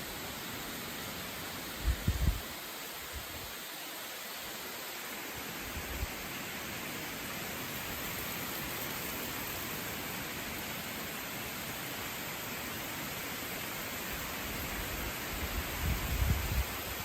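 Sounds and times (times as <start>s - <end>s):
rain: 0.0s - 17.0s
wind noise: 1.8s - 3.5s, 14.6s - 17.0s.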